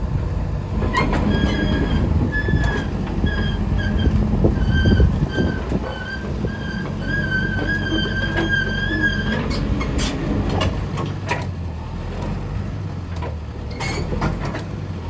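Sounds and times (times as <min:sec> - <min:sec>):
excavator diesel rumble: 0:00.0 - 0:15.0
high squealing tone: 0:00.8 - 0:09.8.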